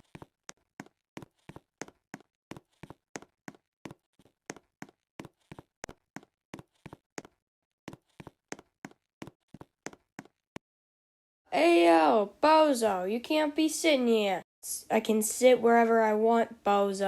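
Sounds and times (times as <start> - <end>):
footsteps walking: 0.0 - 10.4.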